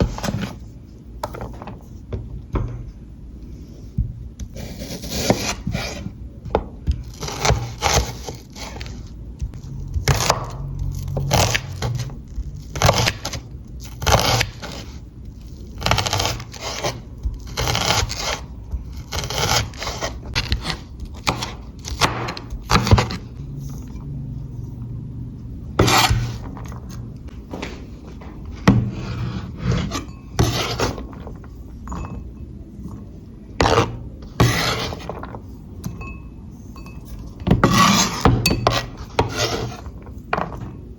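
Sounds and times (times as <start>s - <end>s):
low steady hum: 0.0s - 40.9s
utensil scraping a pan: 25.8s - 26.8s, 28.6s - 32.1s, 33.6s - 35.4s, 37.5s - 40.2s.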